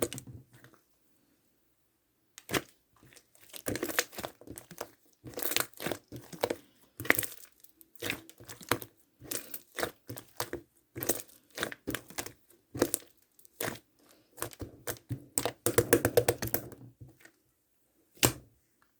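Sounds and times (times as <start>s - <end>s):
slime crackling and popping: 2.4s - 16.6s.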